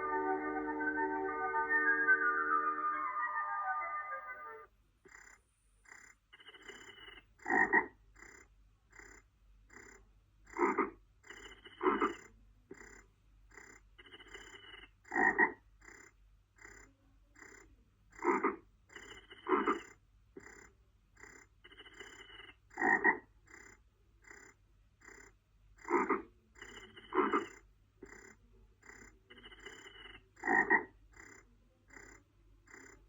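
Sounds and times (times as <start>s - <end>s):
frogs croaking: 7.4s - 7.9s, 22.8s - 23.2s, 30.4s - 33.0s.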